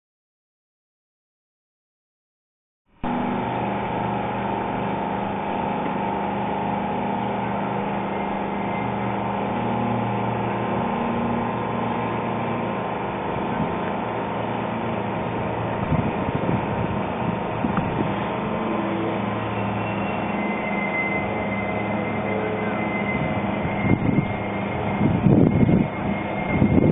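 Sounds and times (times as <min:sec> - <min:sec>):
electric locomotive humming: 0:03.0 - 0:26.9.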